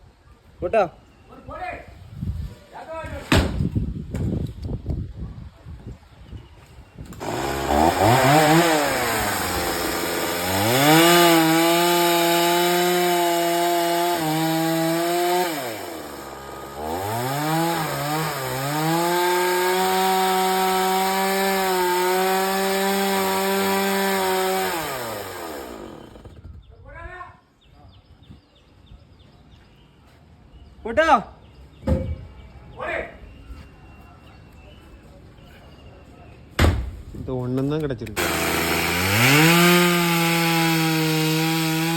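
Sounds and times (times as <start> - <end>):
chainsaw cutting wood: 7.1 - 26.4, 38.2 - 41.9.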